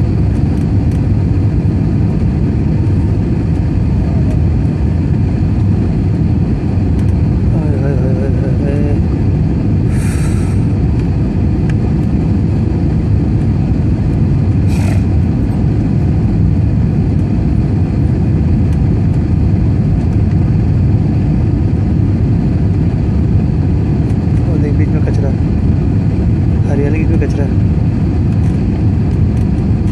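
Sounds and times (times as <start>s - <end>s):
airliner cabin engine rumble: 0.0s - 29.9s
short hissing bursts: 9.9s - 10.6s, 14.7s - 15.1s.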